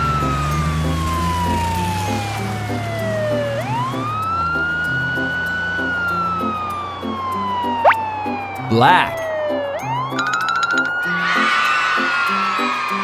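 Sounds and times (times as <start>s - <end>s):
wailing siren: 0.0s - 9.6s
background music: 0.0s - 13.0s.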